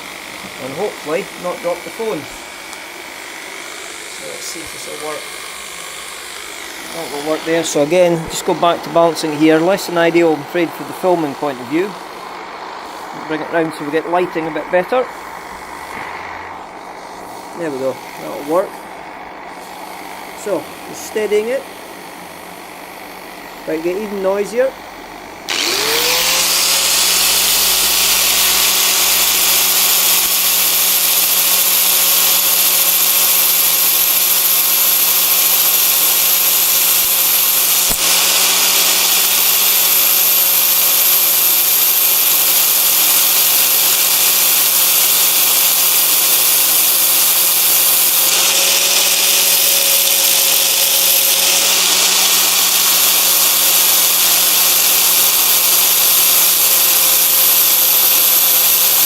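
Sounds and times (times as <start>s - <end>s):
angle grinder grinding metal: 0.0s - 59.0s.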